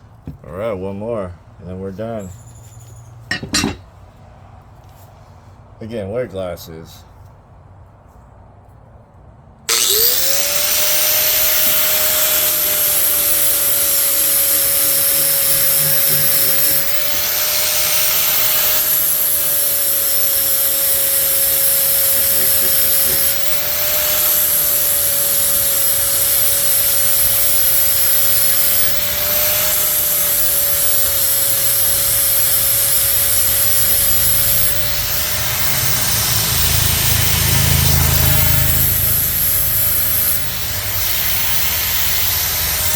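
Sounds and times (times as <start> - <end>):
angle grinder grinding steel: 3.3 - 3.8, 9.7 - 42.9.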